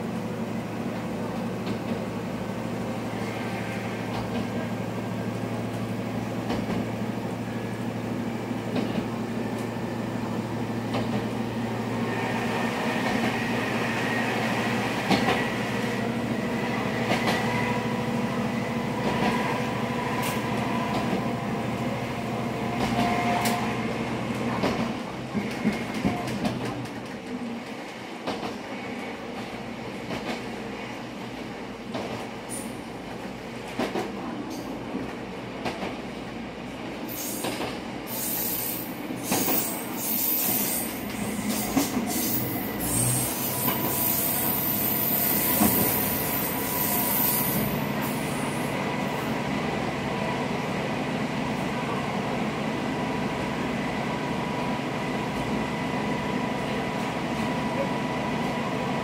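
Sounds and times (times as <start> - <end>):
railcar engine and wheels running: 0.0 - 59.0
high wheel squeal: 38.1 - 48.6.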